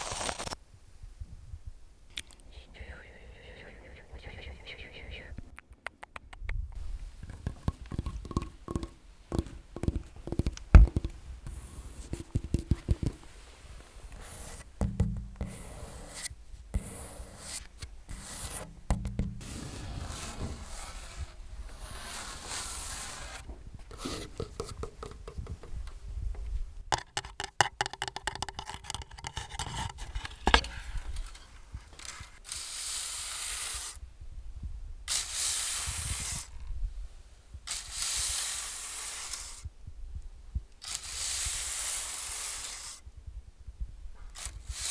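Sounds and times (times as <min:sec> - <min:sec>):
scratching and scraping: 0:00.0 - 0:00.6, 0:06.8 - 0:25.9, 0:28.2 - 0:34.0
quick taps and knocks: 0:05.8 - 0:13.7, 0:14.5 - 0:15.7, 0:18.1 - 0:19.5, 0:23.5 - 0:29.4.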